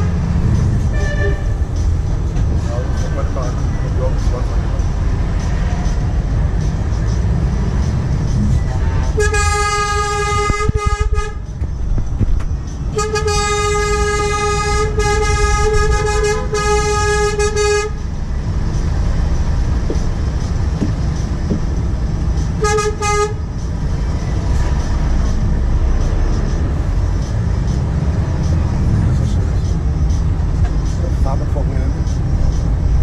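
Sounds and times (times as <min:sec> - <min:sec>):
truck horn blasts: 0:00.0 - 0:01.8, 0:08.8 - 0:11.5, 0:12.9 - 0:18.1, 0:22.5 - 0:23.5
diesel truck engine rumble: 0:00.0 - 0:33.0.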